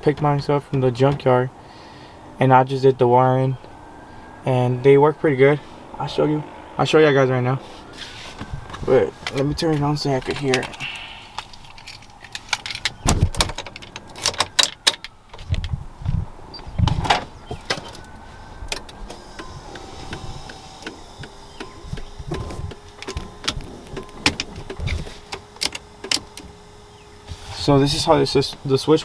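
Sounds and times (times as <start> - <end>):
handling clicks and knocks: 8.4 - 15.8, 16.8 - 26.8
small electric motor whine: 18.9 - 28.6.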